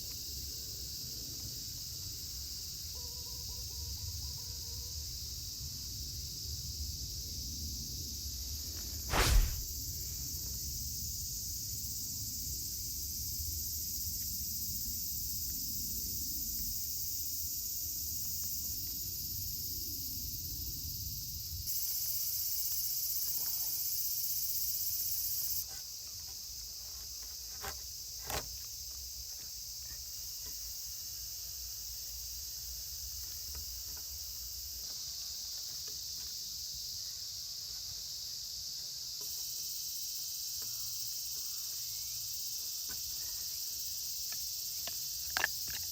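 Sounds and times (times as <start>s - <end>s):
crickets and insects chirping: 0.0s - 45.9s.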